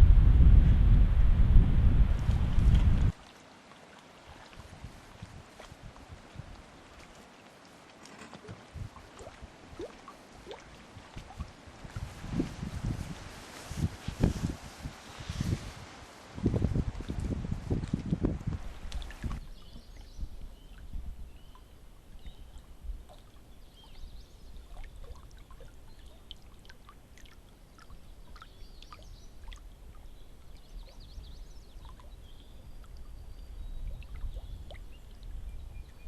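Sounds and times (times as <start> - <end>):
low steady rumble: 0.0 - 3.1
paddle splashing in water: 2.2 - 20.7.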